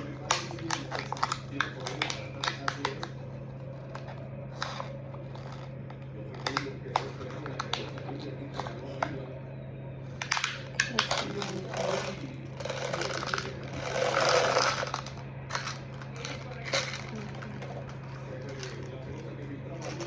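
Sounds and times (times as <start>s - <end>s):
plastic materials clicking and tapping: 0.0s - 3.2s
steady low hum: 0.0s - 20.0s.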